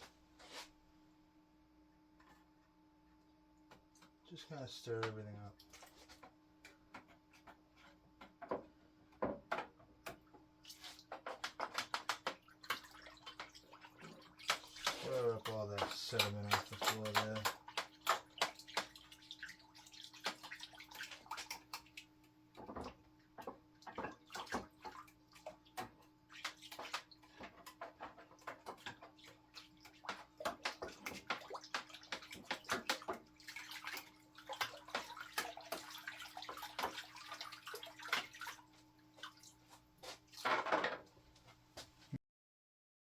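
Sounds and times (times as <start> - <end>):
water sloshing and swirling: 3.9 - 8.6, 9.6 - 40.8.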